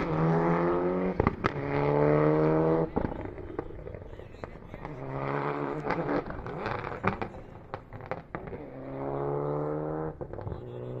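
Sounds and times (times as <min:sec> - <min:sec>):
car engine at high revs: 0:00.0 - 0:11.0
exhaust pops and crackles: 0:01.1 - 0:01.9, 0:02.6 - 0:09.1, 0:10.1 - 0:11.0.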